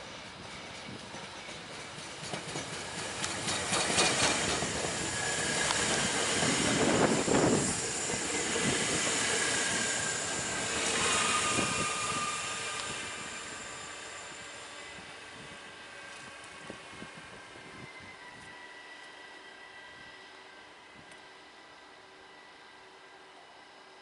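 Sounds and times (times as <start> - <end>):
train wheels rushing on rail: 0.0 - 23.0
brake and wheel squeal: 9.6 - 15.1.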